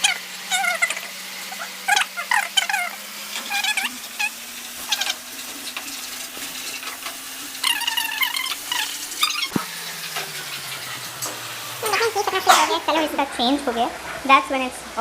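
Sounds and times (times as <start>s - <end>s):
masala sizzling in a pan: 2.9s - 14.2s.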